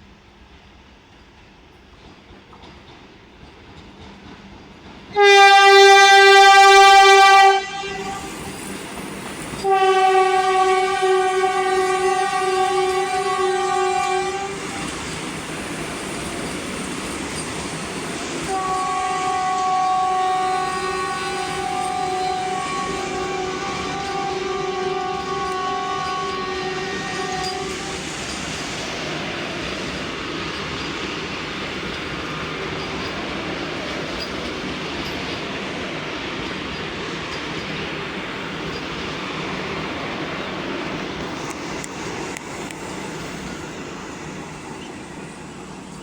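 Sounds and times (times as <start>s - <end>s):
passing train rushing: 0.0s - 46.0s
train horn: 5.1s - 8.6s, 9.6s - 15.2s, 18.0s - 28.4s.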